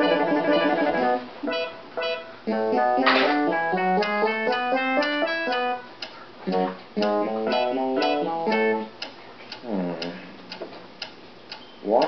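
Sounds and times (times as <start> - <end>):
acoustic guitar music: 0.0 - 5.9, 6.5 - 8.9
clock ticking: 0.0 - 12.0.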